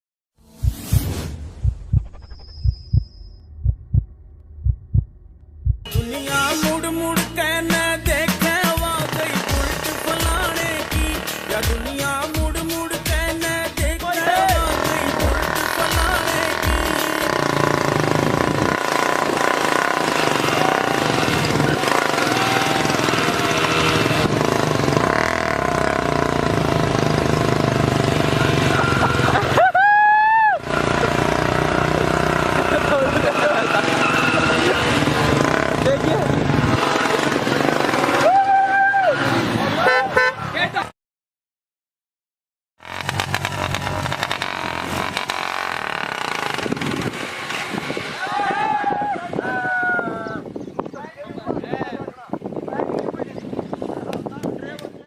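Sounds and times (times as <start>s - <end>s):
short pitched sound: 0.4s - 6.1s
high steady tone: 0.4s - 6.4s
motorcycle engines under load: 6.0s - 29.7s, 30.6s - 38.6s, 42.8s - 55.0s.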